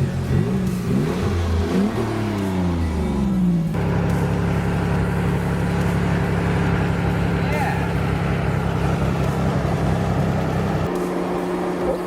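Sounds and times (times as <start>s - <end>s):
car engine revving and idling: 0.0s - 12.0s.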